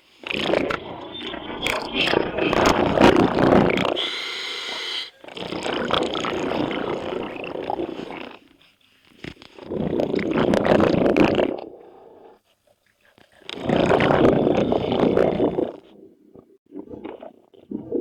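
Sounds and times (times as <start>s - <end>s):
exhaled bubbles rumbling underwater: 0.2s - 4.0s, 5.3s - 8.4s, 13.5s - 15.8s
regulator hissing inhale: 4.0s - 5.2s.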